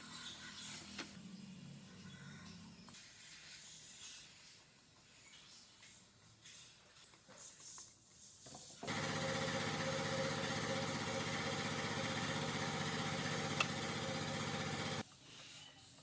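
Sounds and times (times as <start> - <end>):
small electric motor buzzing: 8.9 - 15.0.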